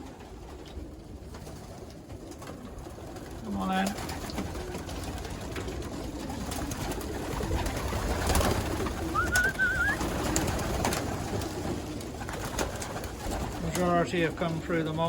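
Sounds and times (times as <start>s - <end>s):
pigeons cooing: 0.0s - 15.0s
short wavering whistle: 9.1s - 10.1s.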